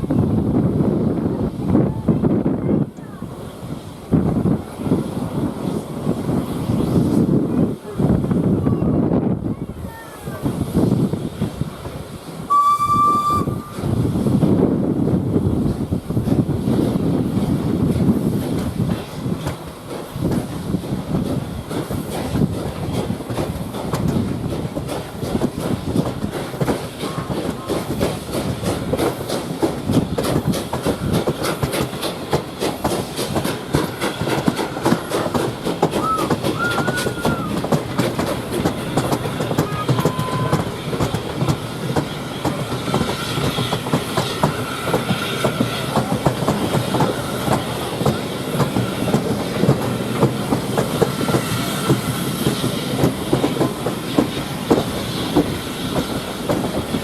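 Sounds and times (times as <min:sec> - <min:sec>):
train wheels clattering: 0:15.6 - 0:57.0.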